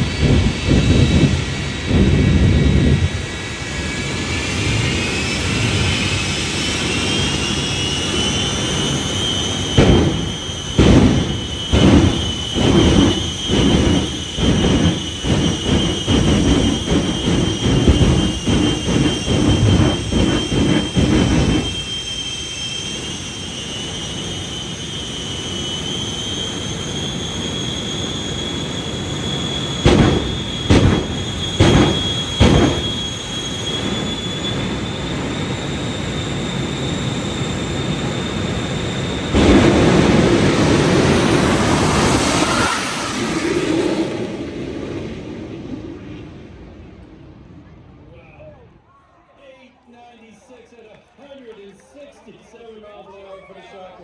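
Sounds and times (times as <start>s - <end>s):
jet engines whining and rumbling: 0.0s - 48.9s
sharp bangs: 8.6s - 22.2s, 27.7s - 36.3s, 37.5s - 44.6s.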